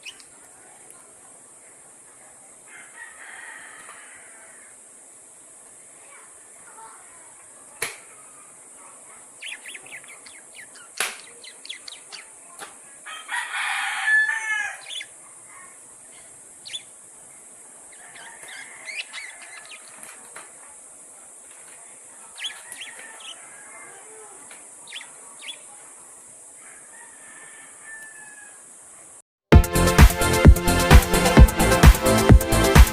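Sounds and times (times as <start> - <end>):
lovebirds chirping: 0.0 - 1.1, 6.0 - 13.3, 14.1 - 26.3.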